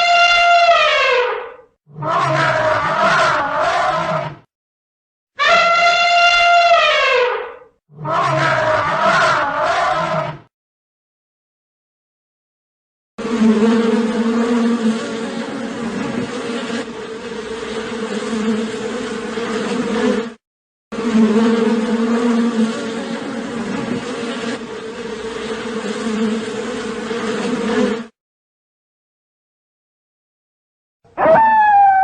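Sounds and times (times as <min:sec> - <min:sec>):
insect buzzing: 0:13.2 - 0:20.4, 0:21.0 - 0:28.2.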